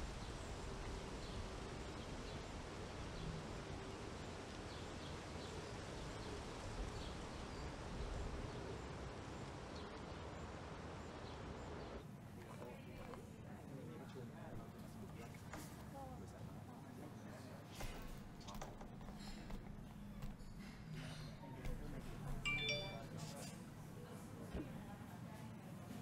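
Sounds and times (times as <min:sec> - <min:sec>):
outdoor background hiss: 0:00.0 - 0:18.4
faint high chirps: 0:22.5 - 0:23.2.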